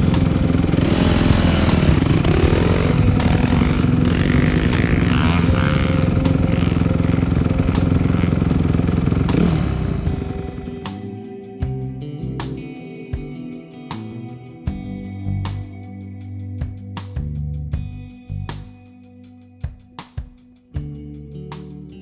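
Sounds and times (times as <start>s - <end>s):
dirt bike engine revving: 0.0s - 11.1s.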